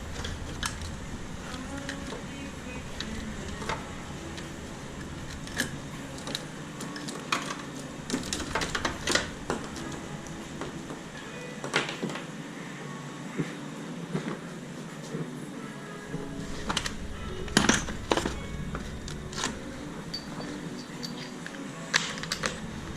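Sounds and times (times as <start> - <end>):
hand tools and metal parts clinking: 2.9 - 10.0, 16.6 - 22.7.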